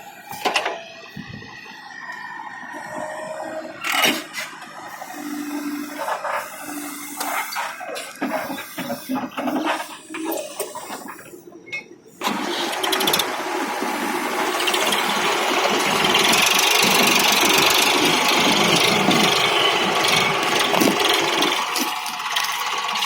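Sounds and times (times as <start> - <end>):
tractor diesel engine running: 12.2 - 23.0.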